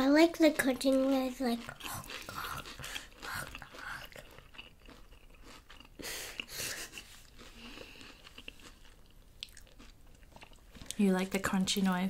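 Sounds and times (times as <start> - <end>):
chewing crunchy fried food: 0.3 - 12.0
breathing: 7.5 - 8.2.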